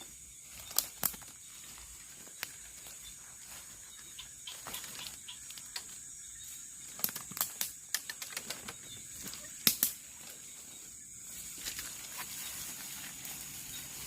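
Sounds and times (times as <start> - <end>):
night insects humming: 0.0 - 14.0
sharp clicks and crackles: 7.0 - 8.8, 9.6 - 10.0.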